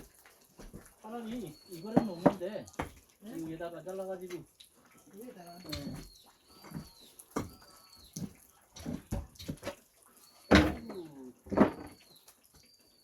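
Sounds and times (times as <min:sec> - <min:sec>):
building materials knocking: 0:01.8 - 0:03.0, 0:10.5 - 0:12.0.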